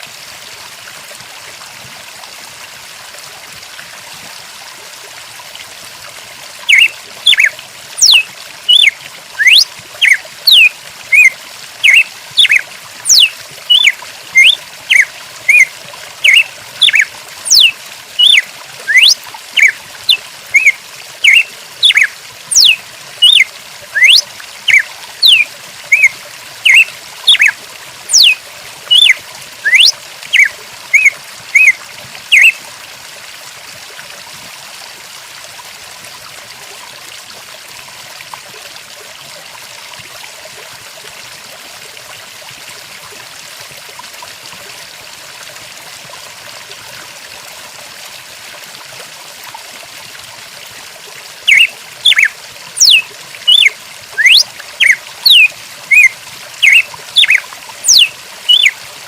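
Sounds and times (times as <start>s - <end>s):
trickling water: 0.0s - 59.0s
bird chirping: 6.7s - 32.6s, 51.5s - 58.7s.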